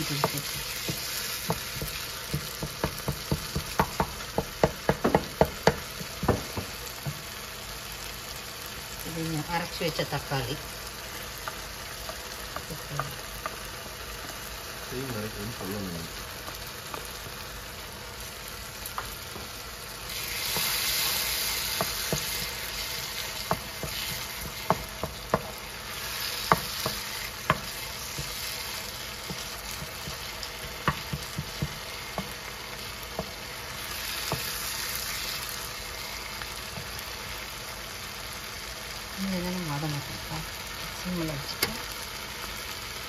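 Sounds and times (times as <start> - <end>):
wooden spoon knocking pan: 0.0 - 7.2, 23.3 - 25.7, 26.4 - 32.4
food sizzling in a frying pan: 0.0 - 43.0.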